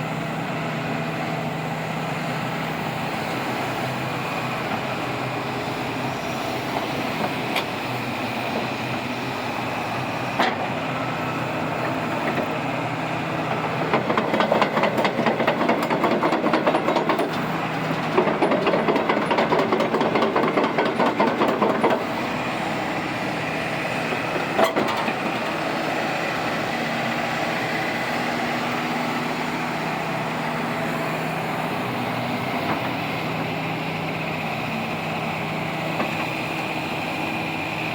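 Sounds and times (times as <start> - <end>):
excavator diesel engine running: 0.0 - 37.9
steel tracks clattering: 13.6 - 22.5.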